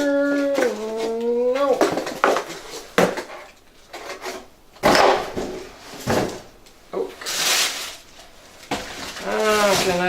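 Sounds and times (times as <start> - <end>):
cardboard box scraping and knocking: 1.7 - 8.0.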